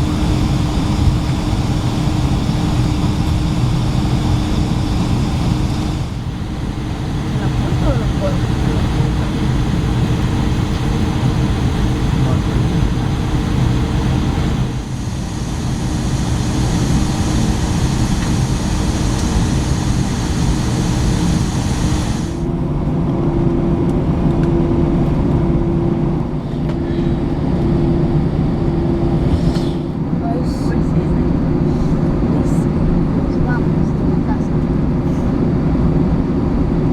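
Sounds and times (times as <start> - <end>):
aircraft cabin hum: 0.0 - 36.9
pulsing low hum: 0.0 - 36.9
rushing hiss of air: 14.5 - 22.4, 29.1 - 30.0.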